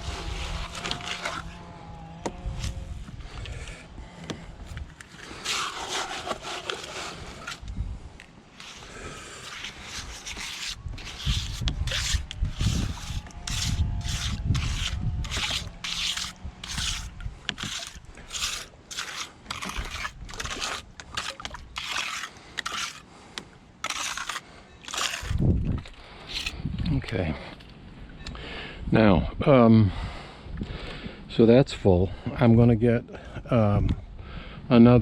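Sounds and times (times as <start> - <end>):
wet cement scraping: 0.0 - 27.6.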